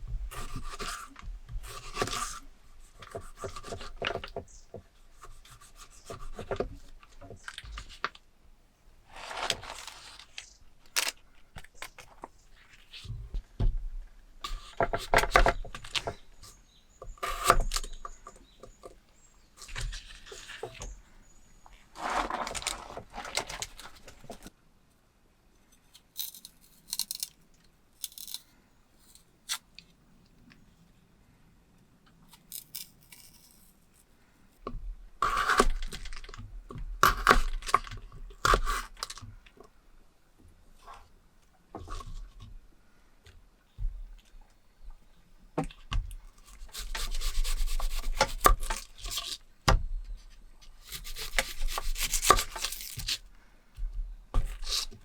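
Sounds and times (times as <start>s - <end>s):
rustling and scraping: 0.0s - 8.3s, 9.0s - 24.6s, 32.1s - 39.7s, 40.7s - 42.6s.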